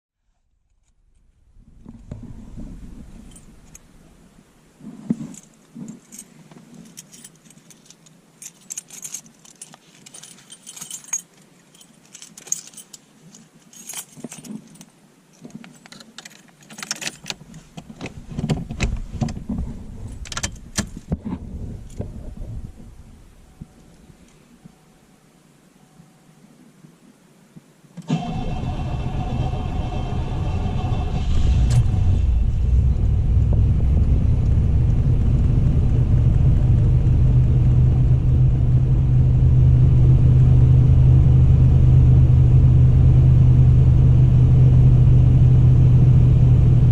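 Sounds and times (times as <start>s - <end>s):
car keys jangling: 3.2s - 3.9s, 5.2s - 17.7s, 18.4s - 21.1s
low knocks and rumbling: 30.0s - 44.8s.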